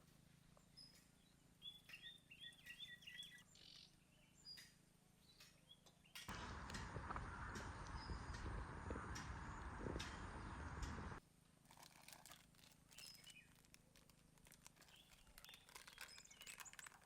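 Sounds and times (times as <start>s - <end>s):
faint bird chirps: 0.6s - 6.3s.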